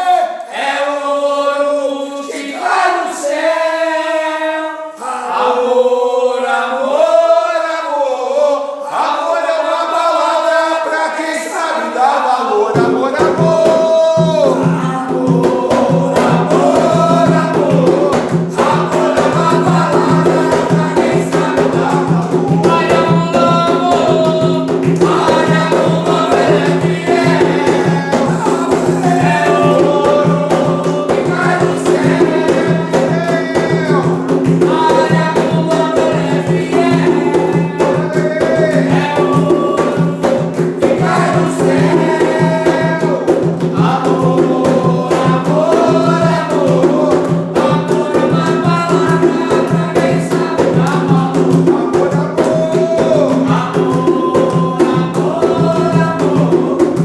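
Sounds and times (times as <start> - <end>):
devotional chant singing: 0.0 - 57.0
steady percussion: 12.7 - 57.0.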